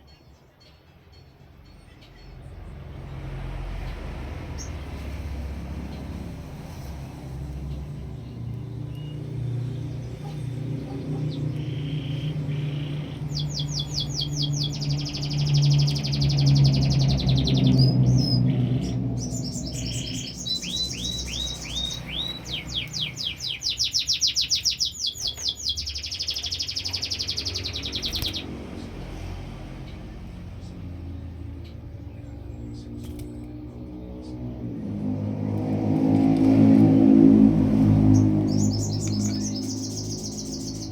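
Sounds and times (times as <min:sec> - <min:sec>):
canary singing trills: 0:07.6 - 0:28.6, 0:38.0 - 0:40.9.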